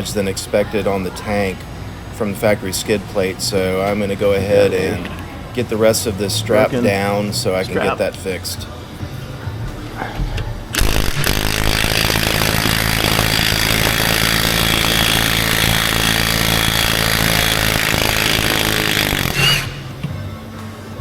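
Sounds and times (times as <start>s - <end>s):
handheld power tool running: 10.7s - 20.0s.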